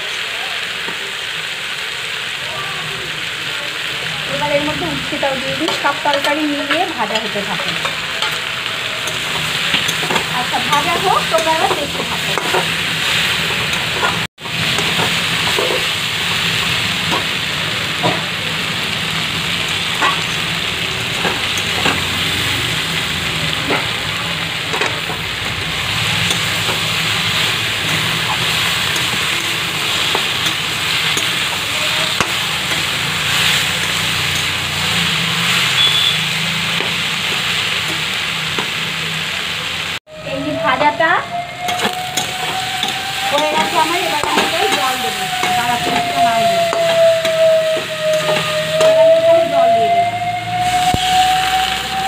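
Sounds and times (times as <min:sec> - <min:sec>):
vegetables sizzling in a pan: 0:00.0 - 0:52.0
metal spatula scraping a pan: 0:05.5 - 0:16.0.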